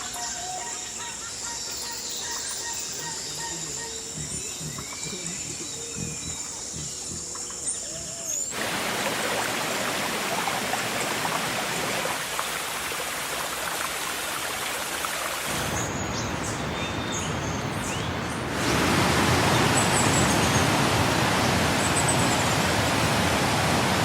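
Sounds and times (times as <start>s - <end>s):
faint chirps: 0.0s - 8.6s
hiss of water with crackle: 8.3s - 15.9s, 18.5s - 24.0s.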